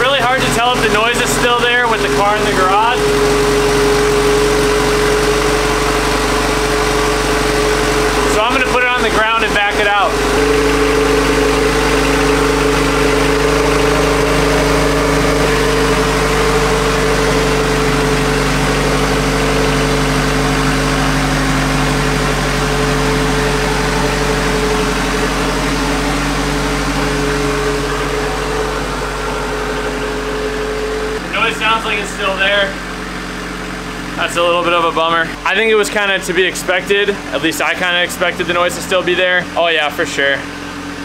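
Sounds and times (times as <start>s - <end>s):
engine idling: 0.0s - 41.0s
engine knocking noise: 0.0s - 41.0s.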